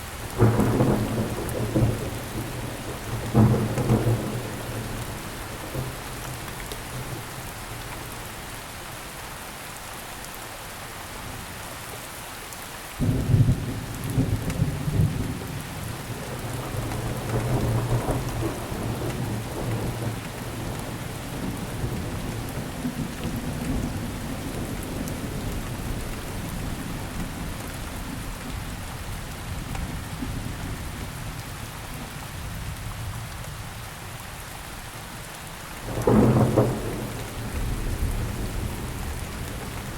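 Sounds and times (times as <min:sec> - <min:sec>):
steady rainfall: 0:00.0 - 0:39.9
thunder rumbling: 0:00.4 - 0:06.0, 0:13.0 - 0:27.5, 0:35.8 - 0:39.9.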